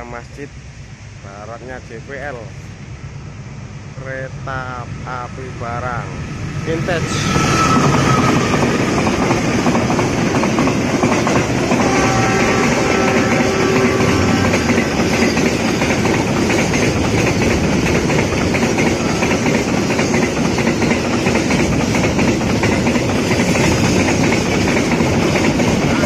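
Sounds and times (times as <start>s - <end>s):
train wheels rumbling on rails: 4.0s - 26.0s
wheels clacking over rail joints: 7.8s - 26.0s.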